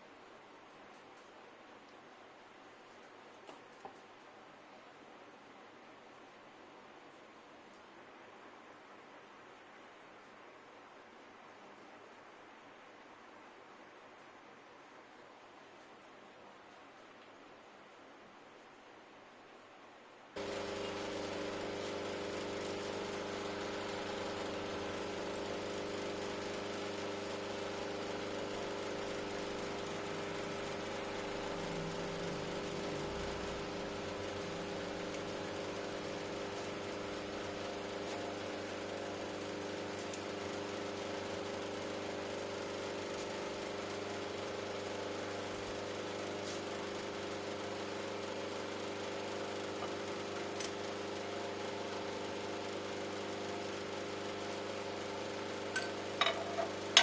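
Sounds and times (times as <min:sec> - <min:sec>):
power tool motor humming: 0:20.4 - 0:39.6.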